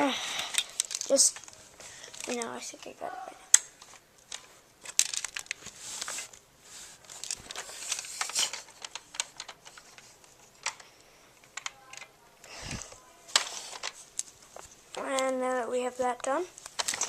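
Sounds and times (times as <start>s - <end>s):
plastic parts clicking and rattling: 0.4s - 2.9s, 3.5s - 6.4s, 7.0s - 15.5s, 16.2s - 17.0s.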